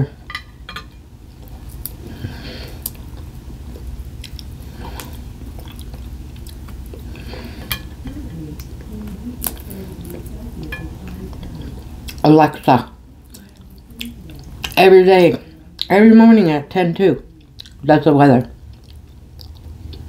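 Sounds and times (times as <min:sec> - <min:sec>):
dishes clicking and tapping: 0:00.3 - 0:01.0
person chewing: 0:01.4 - 0:12.3, 0:13.2 - 0:14.8, 0:17.3 - 0:17.9, 0:18.6 - 0:20.0.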